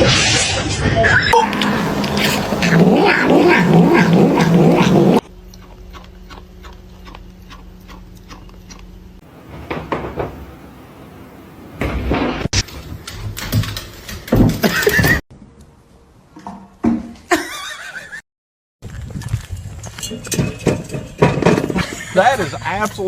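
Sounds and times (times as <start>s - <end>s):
cat vocalising loudly: 1.4s - 5.2s
steady low hum: 1.4s - 5.5s, 9.0s - 12.5s.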